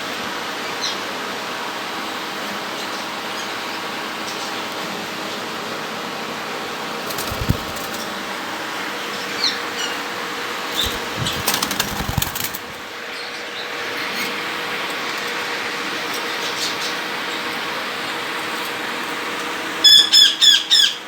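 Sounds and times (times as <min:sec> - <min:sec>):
birds fluttering wings: 0:07.0 - 0:08.5, 0:10.6 - 0:13.2.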